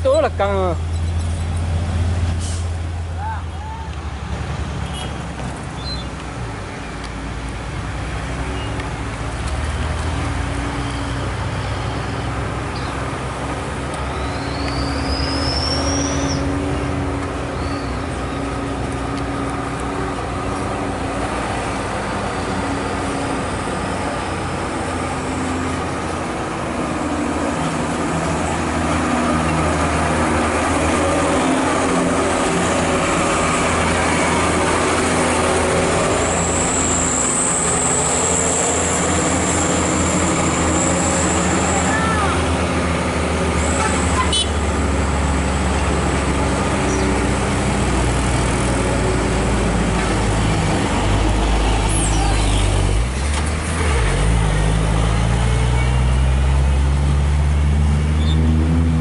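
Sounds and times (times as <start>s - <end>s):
road traffic noise: 0.0s - 59.0s
heavy truck engine under load: 4.2s - 59.0s
short rising squeal: 14.1s - 16.5s, 35.8s - 42.0s, 51.6s - 52.9s.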